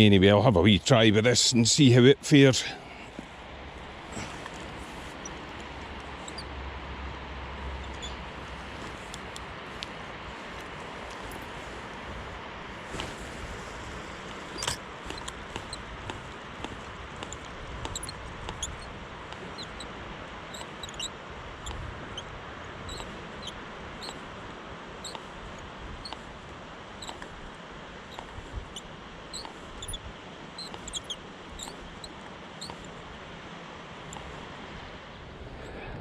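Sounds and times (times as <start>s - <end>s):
river flowing: 2.3s - 35.6s
small birds chirping: 2.8s - 6.6s, 7.6s - 11.9s, 12.8s - 24.4s, 25.0s - 27.5s, 28.1s - 33.2s.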